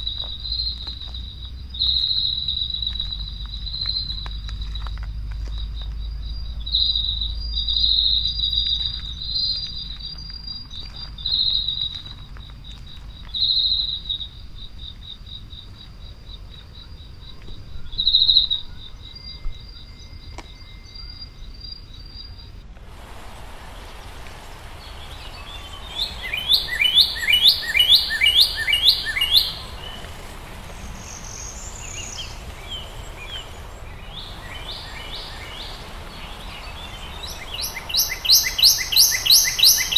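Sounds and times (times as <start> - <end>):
bird singing down-slurred notes: 23.7 - 39.9
insect trilling: 23.8 - 39.9.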